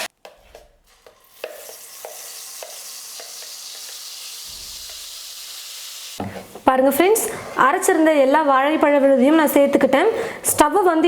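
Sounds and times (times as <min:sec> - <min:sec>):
paste sizzling in hot ghee: 0:00.9 - 0:06.2.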